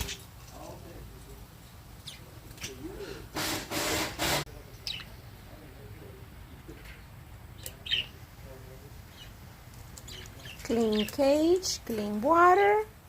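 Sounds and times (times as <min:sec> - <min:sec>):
budgies chirping and warbling: 0:02.0 - 0:03.3, 0:04.6 - 0:05.3, 0:06.0 - 0:09.4, 0:10.0 - 0:11.7.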